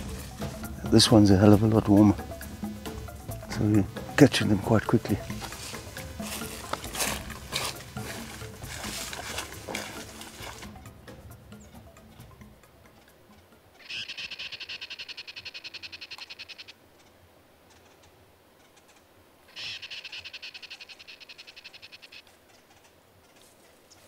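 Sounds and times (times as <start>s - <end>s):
bird rapid repeated call: 13.8s - 16.8s, 17.7s - 23.4s.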